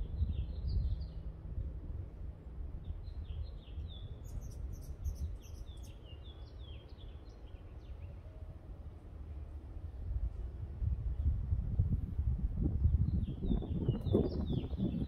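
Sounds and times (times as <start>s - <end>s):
steady low rumble: 0.0s - 5.5s, 8.7s - 15.0s
small birds chirping: 2.8s - 8.2s, 13.0s - 15.0s.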